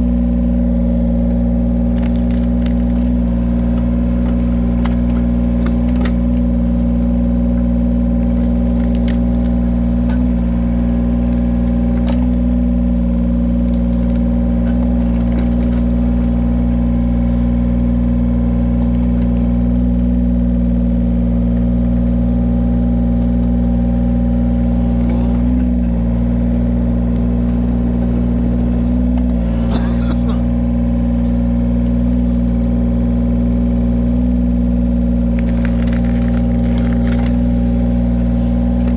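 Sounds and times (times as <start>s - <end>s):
wood-cutting machine engine running: 0.0s - 38.9s.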